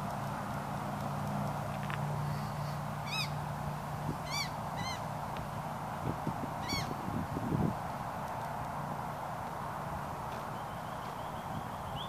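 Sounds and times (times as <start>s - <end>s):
outdoor hiss: 0.0s - 12.0s
bird harsh calls: 2.3s - 3.4s, 4.2s - 5.0s, 6.6s - 7.0s.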